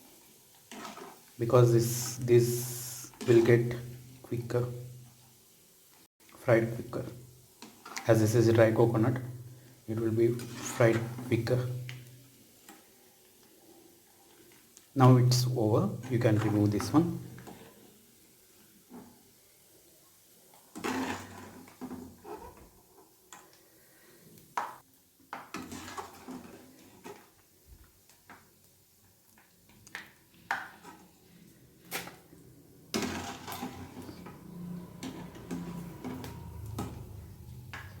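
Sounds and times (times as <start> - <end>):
metal spoon scraping pan: 1.8 - 3.8, 10.3 - 11.6, 20.7 - 22.6, 25.5 - 27.2, 32.9 - 37.1.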